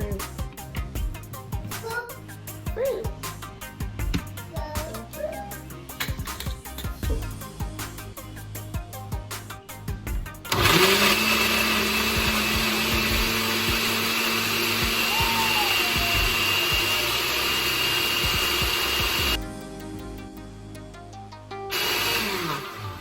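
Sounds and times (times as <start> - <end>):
countertop blender running: 10.5 - 19.4, 21.7 - 23.0.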